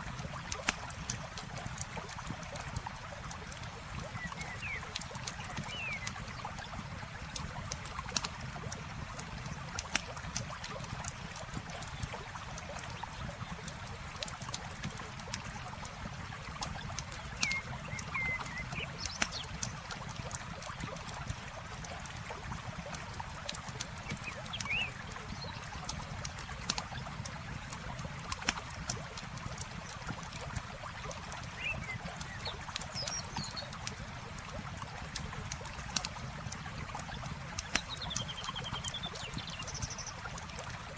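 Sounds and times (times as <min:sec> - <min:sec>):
flowing water: 0:00.0 - 0:40.9
campfire crackling and popping: 0:00.1 - 0:40.9
bird chirps: 0:17.4 - 0:19.5, 0:24.2 - 0:25.0.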